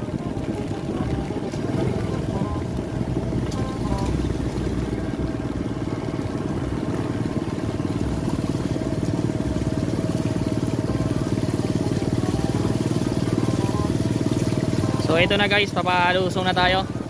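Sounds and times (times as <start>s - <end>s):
small motorcycle engine running: 0.0s - 17.0s.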